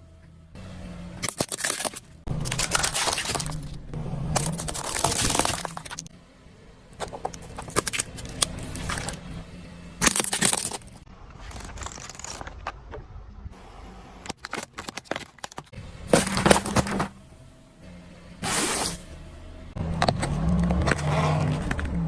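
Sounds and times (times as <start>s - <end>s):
objects crunching under a car: 1.2s - 6.1s, 10.0s - 13.4s, 14.3s - 17.2s.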